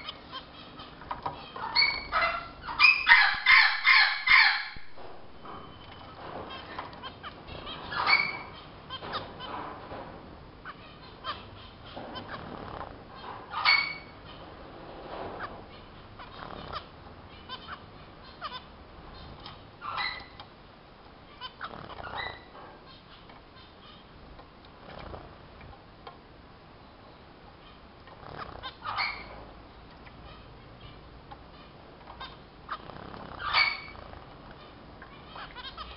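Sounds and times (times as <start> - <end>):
finches chirping: 0.0 - 4.8, 5.4 - 9.6, 10.6 - 14.6, 15.4 - 20.6, 21.2 - 24.2, 26.9 - 35.9.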